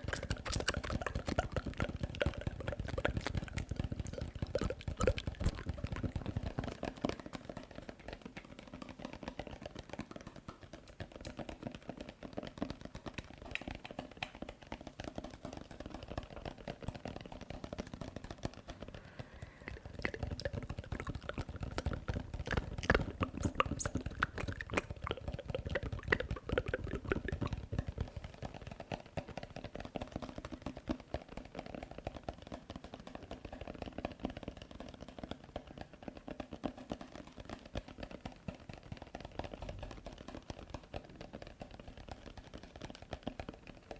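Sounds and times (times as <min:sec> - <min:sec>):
wet mouth sounds: 0:00.0 - 0:07.4, 0:18.7 - 0:28.4.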